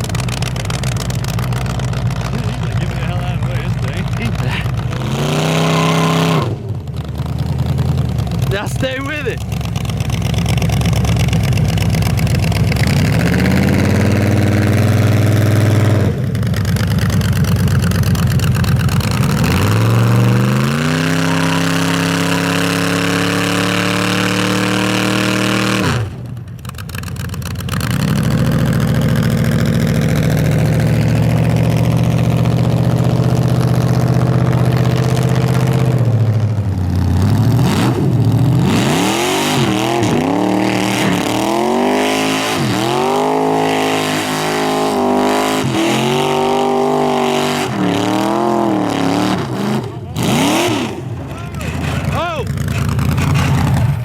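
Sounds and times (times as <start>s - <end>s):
truck engine revving high: 0.0s - 54.0s
spinning tires hissing: 37.0s - 54.0s.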